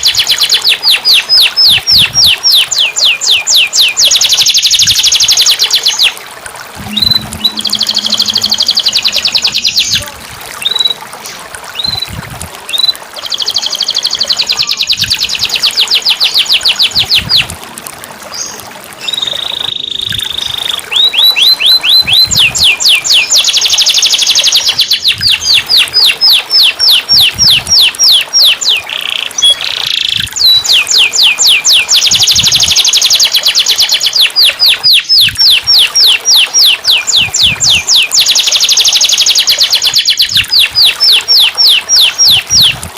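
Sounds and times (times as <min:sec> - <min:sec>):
canary singing trills: 0:06.8 - 0:11.0, 0:11.7 - 0:17.6, 0:18.3 - 0:42.9.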